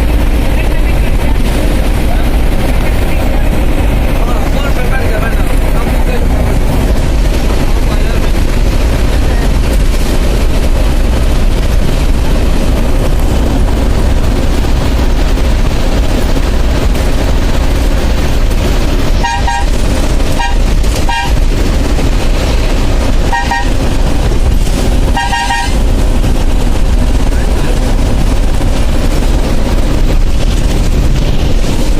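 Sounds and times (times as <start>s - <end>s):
bus rumbling: 0.0s - 31.9s
vehicle horn toots: 19.2s - 21.4s, 23.2s - 23.8s, 25.1s - 25.9s.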